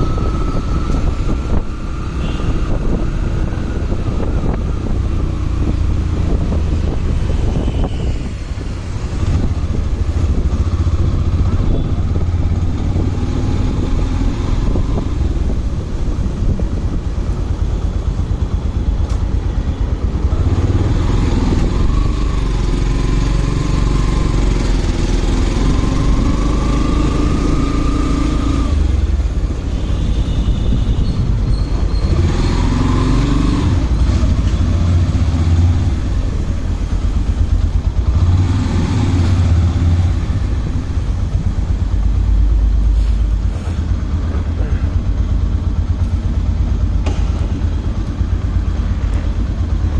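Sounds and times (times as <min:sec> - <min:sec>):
low wind rumble: 0:00.0 - 0:49.9
motorcycle engine running: 0:32.7 - 0:49.9.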